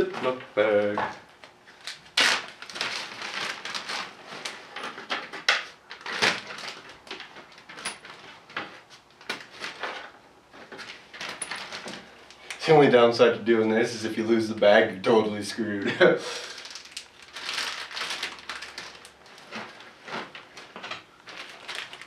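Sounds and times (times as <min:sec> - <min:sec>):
plastic bag crinkling: 0:01.7 - 0:04.6, 0:16.3 - 0:22.0.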